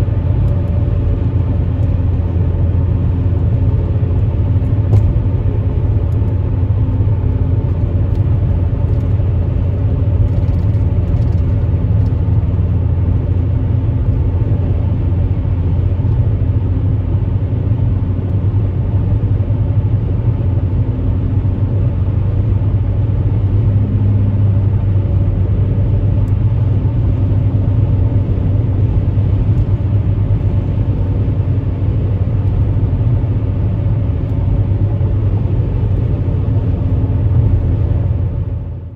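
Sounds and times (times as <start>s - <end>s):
car engine droning: 0.0s - 38.9s.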